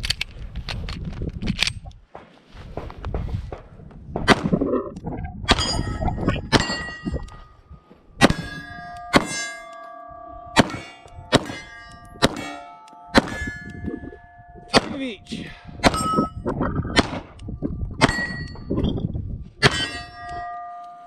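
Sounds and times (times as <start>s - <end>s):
shots striking steel targets: 5.5s - 7.2s, 8.2s - 16.3s, 16.9s - 17.4s, 18.0s - 18.7s, 19.6s - 20.6s
steel plate ringing: 5.6s - 7.4s, 8.2s - 16.4s, 18.0s - 18.7s, 19.6s - 21.0s.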